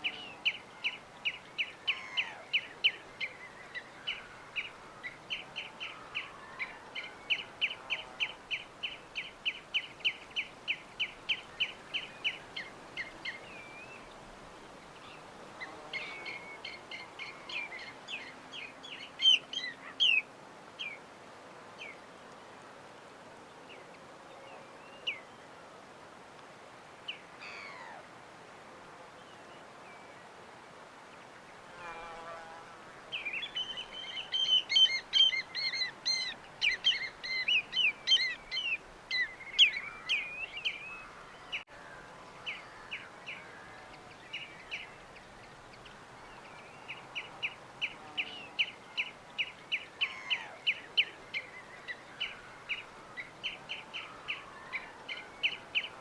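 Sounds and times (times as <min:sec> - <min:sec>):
songbirds singing: 0:00.0 - 0:22.5, 0:23.3 - 0:25.7, 0:31.0 - 0:56.0
faint steady background hiss: 0:00.0 - 0:56.0
bird chirping: 0:15.0 - 0:21.0, 0:33.1 - 0:41.7.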